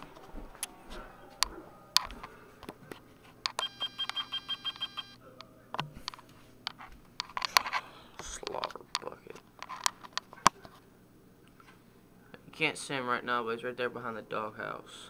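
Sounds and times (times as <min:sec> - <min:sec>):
rapid electronic beeps: 0:03.6 - 0:05.2.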